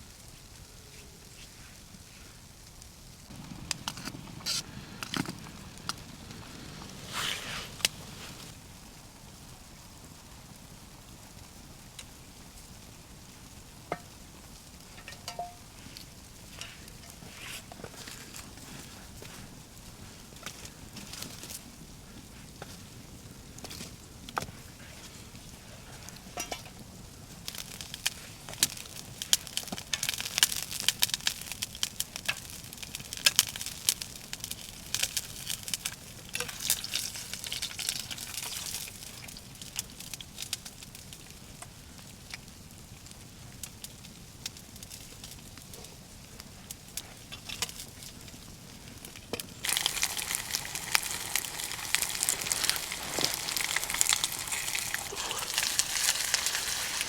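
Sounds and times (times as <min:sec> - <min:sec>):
wood fire crackling and popping: 0:00.1 - 0:57.0
hiss of flames: 0:00.2 - 0:13.7, 0:43.0 - 0:57.0.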